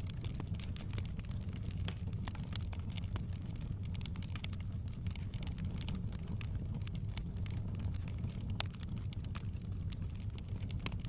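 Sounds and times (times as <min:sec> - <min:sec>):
rumble of flames: 0:00.0 - 0:11.0
wood crackling and popping: 0:00.0 - 0:11.0.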